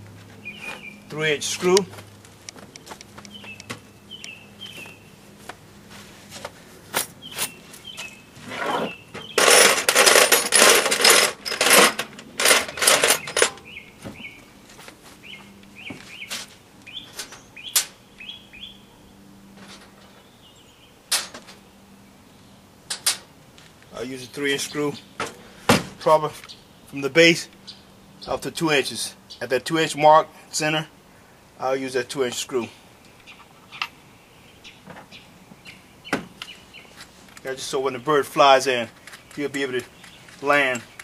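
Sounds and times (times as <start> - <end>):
birds chirping: 0.0 - 22.8, 23.7 - 41.0
metal screws clinking and rattling: 9.3 - 13.7.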